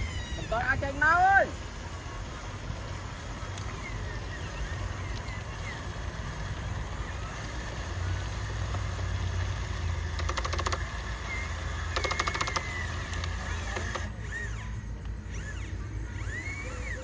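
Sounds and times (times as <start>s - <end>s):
toy truck motor rumbling: 0.0s - 17.0s
rapid clicking: 10.1s - 14.1s.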